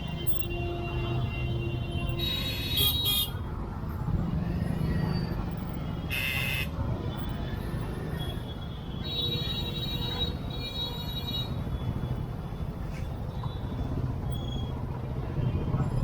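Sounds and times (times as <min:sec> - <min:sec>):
vehicle horns honking: 0:00.0 - 0:03.4, 0:06.0 - 0:06.7
traffic engine rumble: 0:00.0 - 0:16.0.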